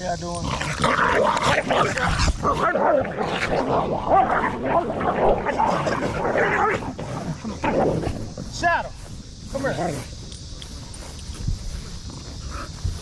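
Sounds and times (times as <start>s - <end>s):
dogs growling and barking: 0.3s - 8.5s, 11.7s - 13.0s.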